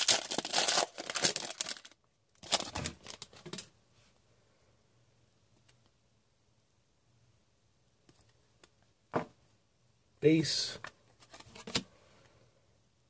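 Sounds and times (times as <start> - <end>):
wrapper crinkling and tearing: 0.0 - 3.6.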